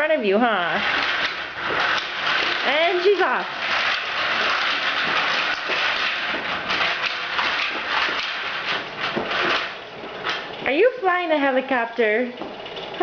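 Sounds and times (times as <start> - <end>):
toy rattling on hard floor: 0.7 - 11.0.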